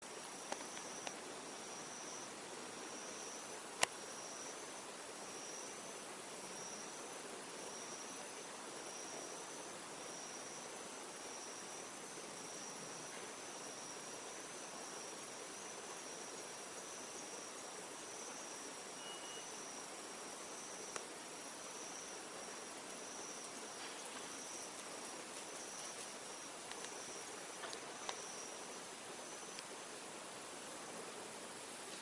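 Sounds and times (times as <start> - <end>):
faint steady hiss: 0.0 - 32.0
insect trilling: 0.2 - 32.0.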